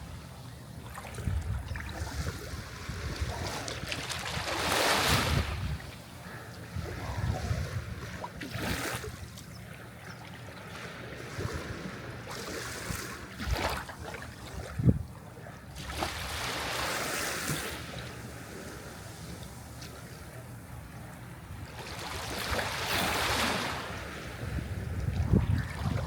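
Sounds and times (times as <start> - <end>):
low rumble of surf: 0.0 - 26.0
sea waves washing up shore: 0.9 - 6.0, 15.8 - 20.2, 21.2 - 26.0.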